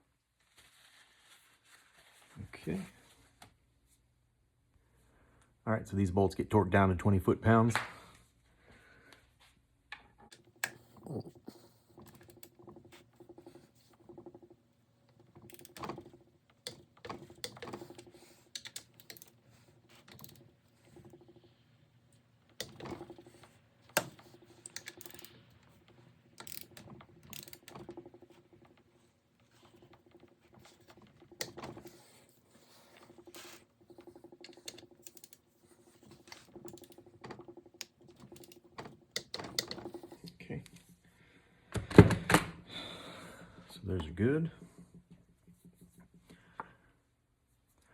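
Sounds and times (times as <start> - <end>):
wrench ratcheting and clicking: 15.2 - 21.5, 22.6 - 28.8, 33.1 - 35.4, 36.2 - 39.8.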